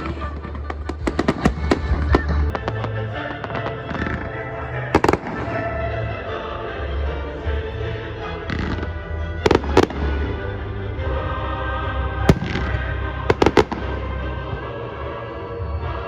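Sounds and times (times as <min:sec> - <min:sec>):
fireworks bursting with bangs: 0:00.0 - 0:06.0, 0:08.4 - 0:10.5, 0:12.3 - 0:14.8
music: 0:00.0 - 0:16.0.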